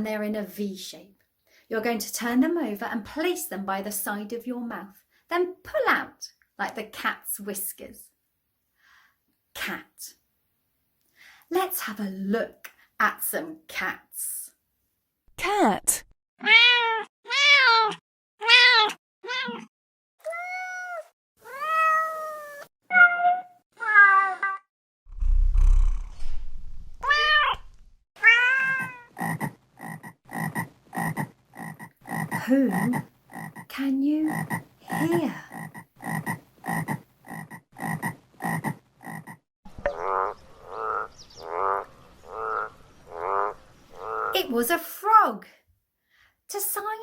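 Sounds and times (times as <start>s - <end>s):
cats meowing: 16.4s - 24.6s, 28.2s - 29.1s
frogs croaking: 29.2s - 33.7s, 34.3s - 44.4s.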